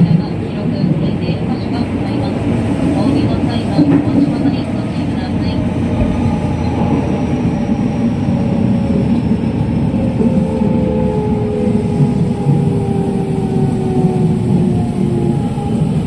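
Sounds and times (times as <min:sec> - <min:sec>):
train wheels rumbling on track: 0:00.0 - 0:16.0
train traction motors whining: 0:02.5 - 0:16.0.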